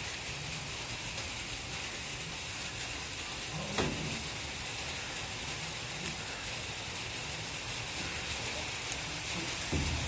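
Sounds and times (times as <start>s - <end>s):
light rain falling: 0.0s - 10.0s.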